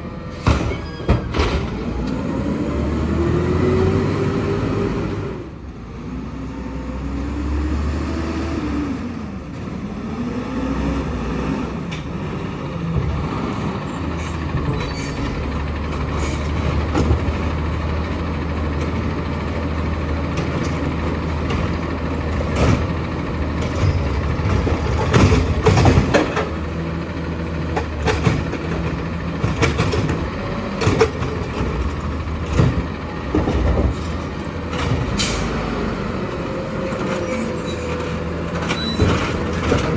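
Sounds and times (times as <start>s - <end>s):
diesel truck engine running: 7.2s - 39.9s
metal clanks and knocks: 16.0s - 26.9s, 27.6s - 35.6s, 38.5s - 39.9s.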